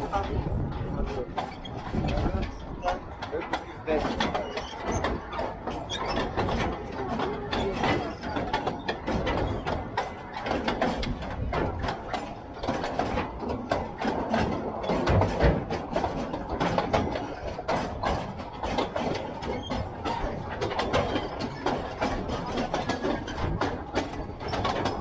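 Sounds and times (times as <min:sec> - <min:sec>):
train rattling on track: 0:00.0 - 0:25.0.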